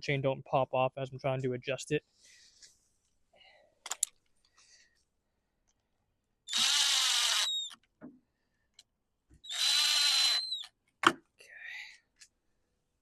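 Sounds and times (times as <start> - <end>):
power drill whining: 6.5 - 7.8, 9.4 - 10.7.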